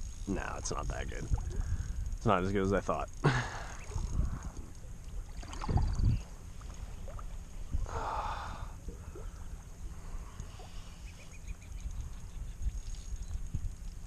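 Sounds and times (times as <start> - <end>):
wind on microphone: 0.0 - 2.3, 3.8 - 10.8, 11.4 - 14.0
river water running: 2.2 - 11.9.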